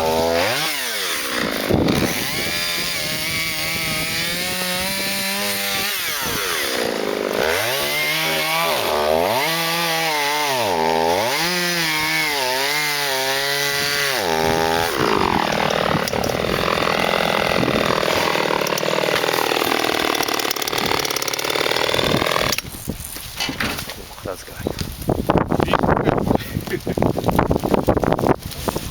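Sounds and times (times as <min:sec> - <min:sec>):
chainsaw cutting wood: 0:00.0 - 0:22.8.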